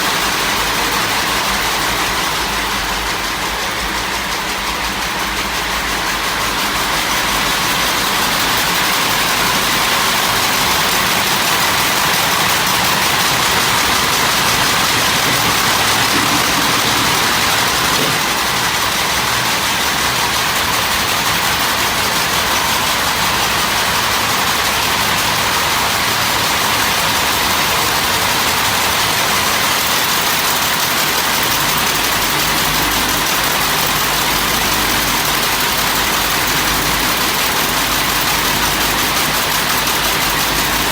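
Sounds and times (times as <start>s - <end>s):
machinery noise: 4.3s - 20.7s.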